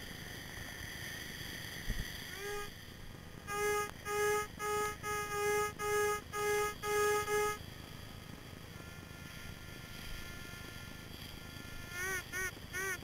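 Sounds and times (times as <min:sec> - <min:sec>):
metal detector rising tone: 0:03.5 - 0:07.6.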